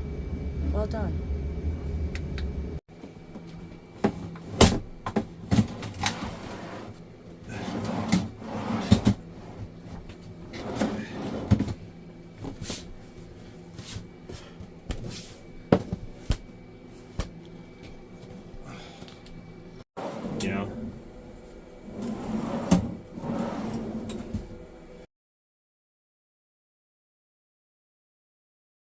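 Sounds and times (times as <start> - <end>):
drawer sliding: 4.0 - 11.8, 21.8 - 24.5.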